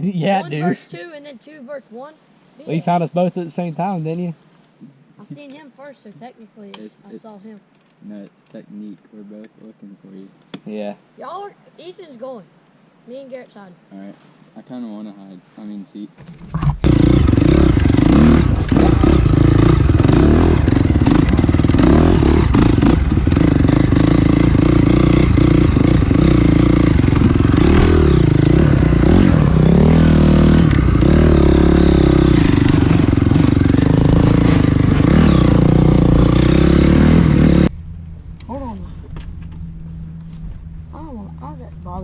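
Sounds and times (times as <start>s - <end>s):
dirt bike engine revving: 16.6s - 37.8s.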